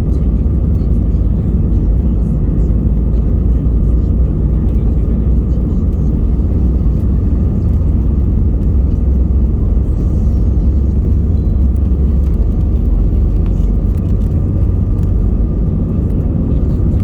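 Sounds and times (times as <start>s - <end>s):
airliner low rumble: 0.0s - 17.0s.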